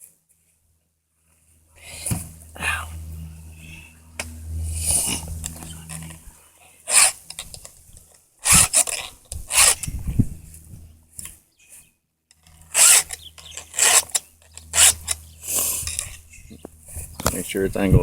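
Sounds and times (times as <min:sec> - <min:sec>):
file rasping on chainsaw chain: 0:06.9 - 0:07.5, 0:08.4 - 0:09.9, 0:12.4 - 0:16.2.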